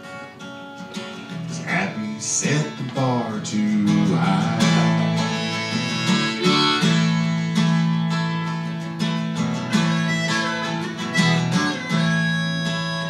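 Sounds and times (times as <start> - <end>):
acoustic guitar strumming: 0.0 - 13.0
harmonica playing held notes: 4.1 - 13.0.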